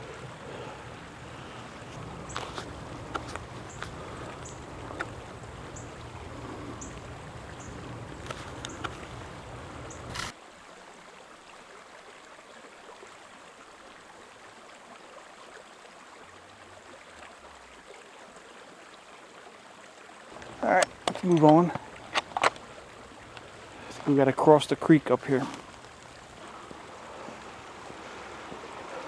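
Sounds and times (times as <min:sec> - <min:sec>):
creek water running: 0:00.0 - 0:29.0
footstep clicks: 0:01.9 - 0:10.3, 0:20.3 - 0:26.8.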